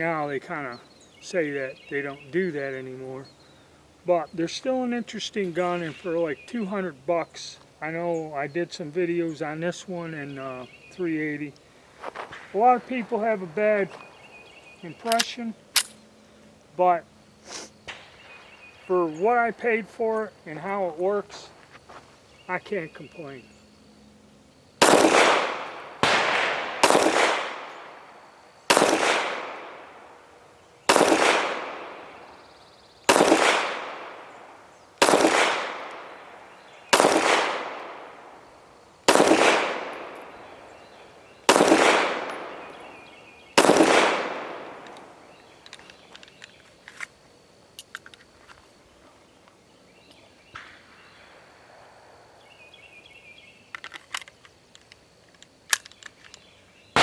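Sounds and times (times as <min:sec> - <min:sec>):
pistol shots with echo: 0:24.8 - 0:28.0, 0:28.7 - 0:30.1, 0:30.9 - 0:32.3, 0:33.1 - 0:34.3, 0:35.0 - 0:38.4, 0:39.1 - 0:40.7, 0:41.5 - 0:45.2
faint clicks: 0:44.8 - 0:47.1.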